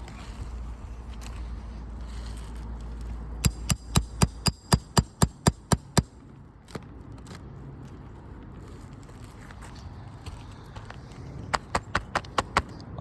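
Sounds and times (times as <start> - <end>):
tapping on asphalt shingle: 2.8 - 7.4, 9.2 - 12.8.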